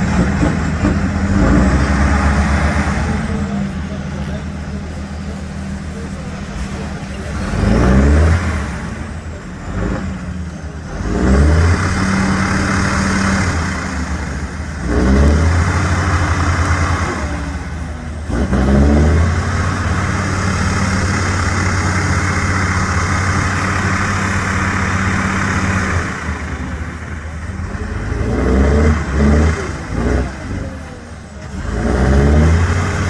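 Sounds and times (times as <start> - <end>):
truck engine revving hard: 0.0 - 33.0.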